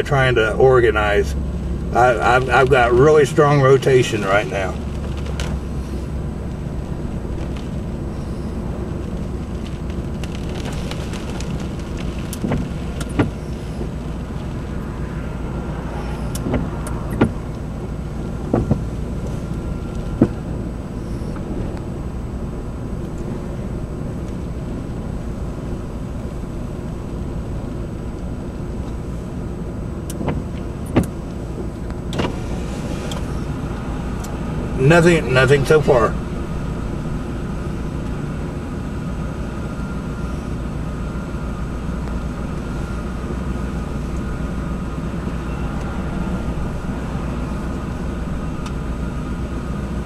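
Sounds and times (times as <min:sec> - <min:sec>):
low rumble inside car: 0:00.0 - 0:50.0
sharp clicks and knocks: 0:30.1 - 0:32.4.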